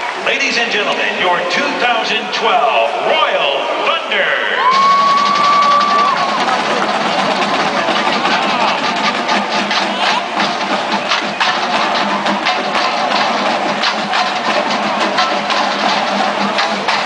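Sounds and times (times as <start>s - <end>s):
marching drum line: 3.8s - 17.0s.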